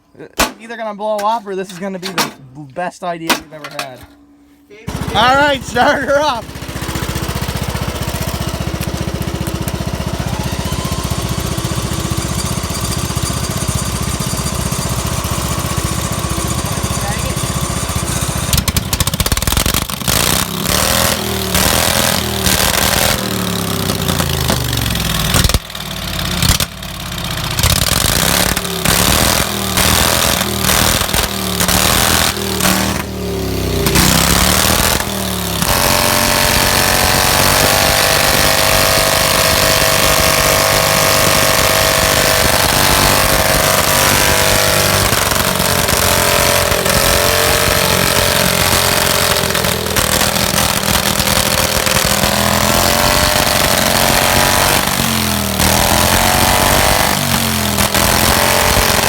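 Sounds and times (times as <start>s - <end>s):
small tractor engine revving: 4.9s - 59.0s.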